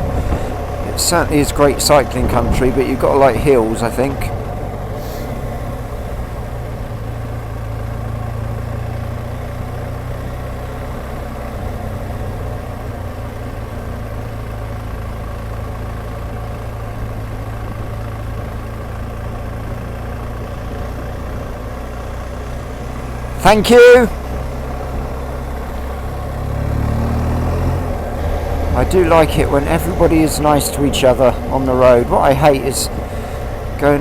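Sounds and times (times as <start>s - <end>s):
motorcycle engine running steadily: 0.0s - 34.0s.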